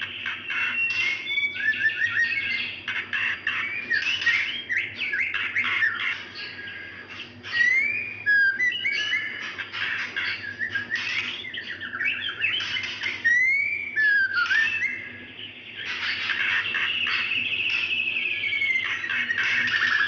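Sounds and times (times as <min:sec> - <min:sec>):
bird whistled notes: 0:00.0 - 0:20.0
bird chattering rattles: 0:00.2 - 0:06.6, 0:07.2 - 0:15.1, 0:15.7 - 0:20.0.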